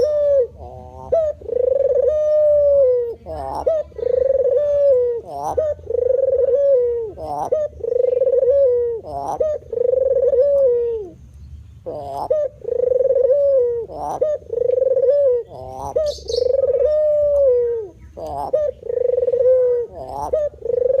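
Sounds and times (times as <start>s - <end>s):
dove cooing: 0.0s - 11.2s, 11.8s - 21.0s
high bird chirp: 15.4s - 16.9s.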